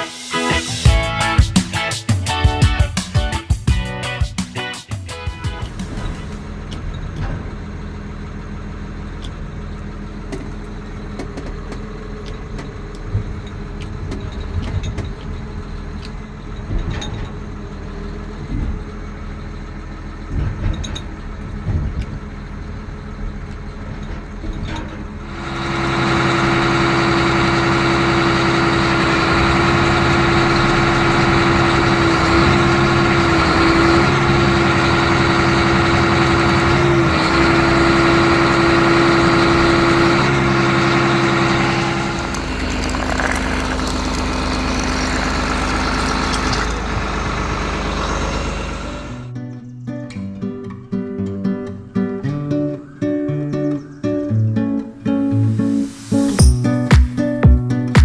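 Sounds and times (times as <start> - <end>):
diesel engine rumbling: 5.1 - 49.4
steady whine: 12.4 - 49.3.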